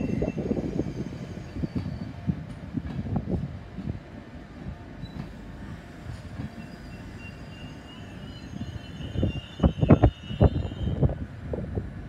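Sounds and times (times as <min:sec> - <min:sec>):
electric train low rumble: 0:00.0 - 0:12.0
thin high squeal: 0:06.5 - 0:11.0.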